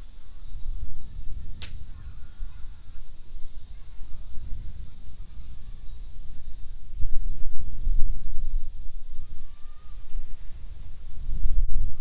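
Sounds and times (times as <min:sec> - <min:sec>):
high-pitched hiss: 0:00.0 - 0:12.0
short sharp click: 0:01.6 - 0:01.8.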